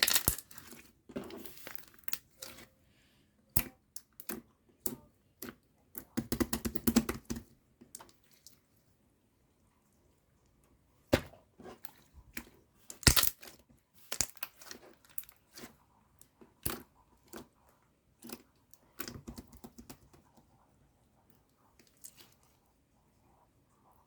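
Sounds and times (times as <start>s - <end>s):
slime crackling and popping: 0.0s - 0.8s, 12.9s - 15.6s.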